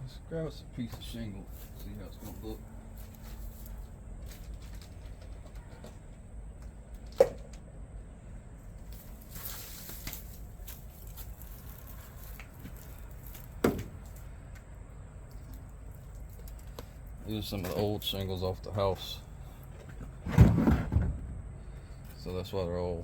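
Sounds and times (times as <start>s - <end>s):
scrape or rustle: 9.0s - 12.9s.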